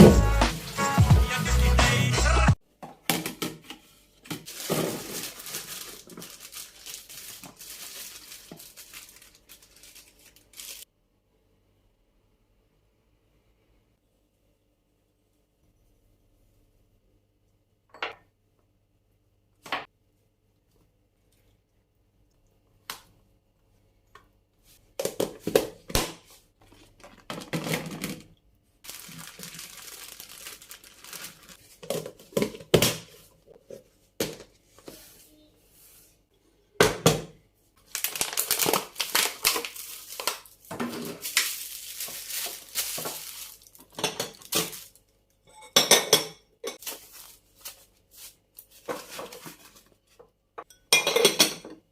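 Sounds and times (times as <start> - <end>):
packaging rustling: 4.4 - 10.8, 28.8 - 31.9, 37.8 - 45.0, 46.8 - 49.8
containers clattering: 26.7 - 28.4.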